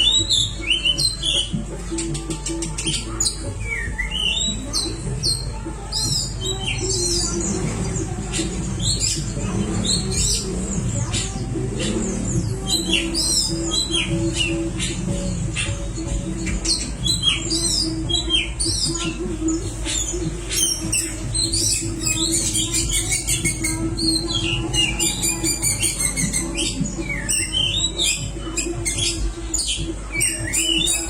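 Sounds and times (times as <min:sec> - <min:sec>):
bird singing whistles: 0:03.5 - 0:04.8, 0:20.6 - 0:31.0.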